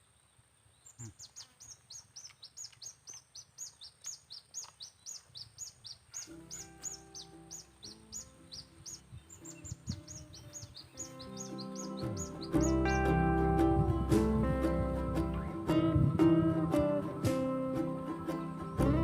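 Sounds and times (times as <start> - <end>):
small bird chirping rapidly: 0.0 - 13.2
background music: 6.4 - 19.0.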